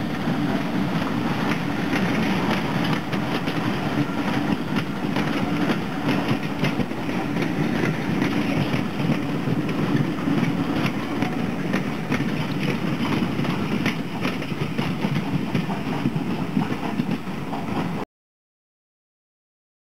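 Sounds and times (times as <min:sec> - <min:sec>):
train coaches rumbling past: 0:00.0 - 0:18.0
wheels clicking over rail joints: 0:00.4 - 0:18.0.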